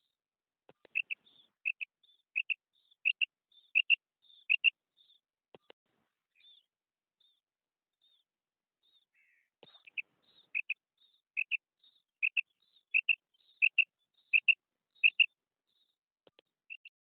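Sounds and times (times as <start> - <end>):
quail calling: 0.9 - 4.7, 9.2 - 10.8, 11.4 - 11.6, 12.2 - 15.3, 16.7 - 17.0.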